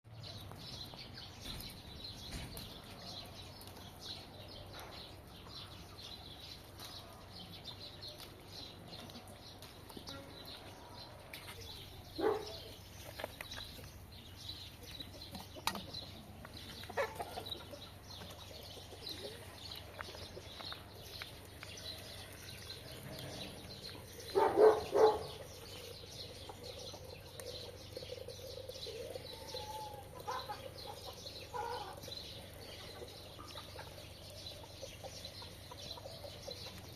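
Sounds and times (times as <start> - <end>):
small birds chirping: 0.1 - 36.9
chickens clucking: 10.8 - 36.9.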